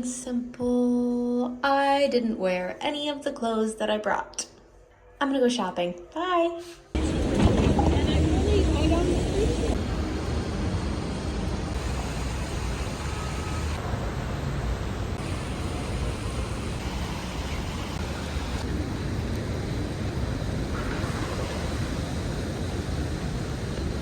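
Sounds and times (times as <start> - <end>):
city traffic noise: 7.0 - 24.0.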